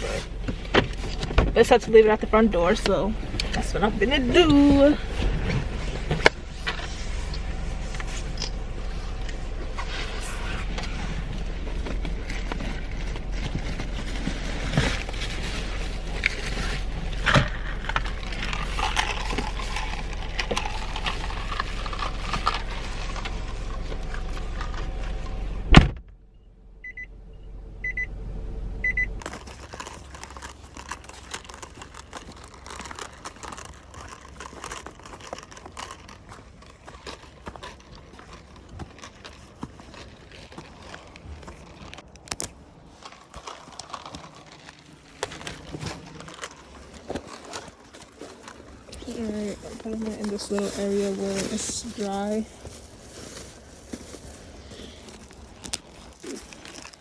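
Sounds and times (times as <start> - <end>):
crunching: 0.0 - 25.3, 29.2 - 57.0
low steady hum: 0.0 - 57.0
car door slamming: 25.7 - 26.1
bags and keys rustling: 29.2 - 57.0.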